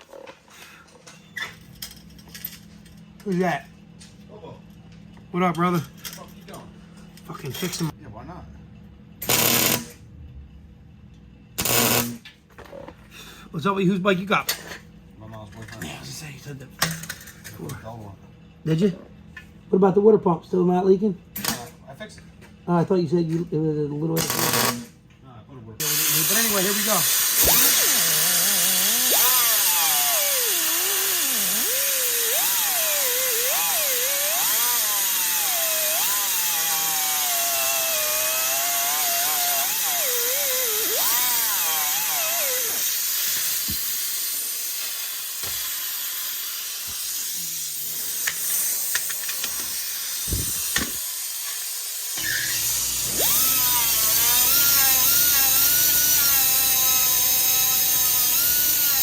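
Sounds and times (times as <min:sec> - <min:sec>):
rotary tool grinding metal: 0:25.8 - 0:59.0.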